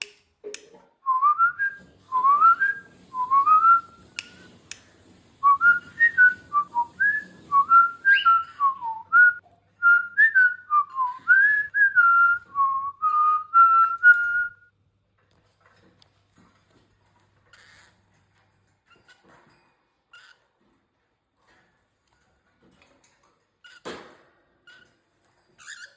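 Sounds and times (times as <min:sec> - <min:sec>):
cockatiel whistling: 0:01.1 - 0:04.5, 0:05.4 - 0:14.5.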